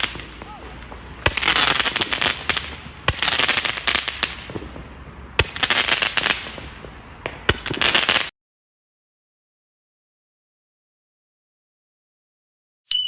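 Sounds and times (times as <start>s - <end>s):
firework bangs: 0.0s - 8.3s
firework crackling: 0.0s - 8.3s.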